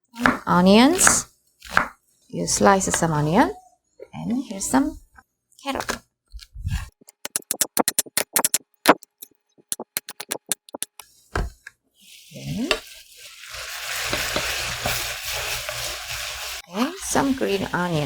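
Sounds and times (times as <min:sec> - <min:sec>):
knife chopping on cutting board: 0:01.0 - 0:01.9
meat sizzling in a frying pan: 0:12.0 - 0:18.0.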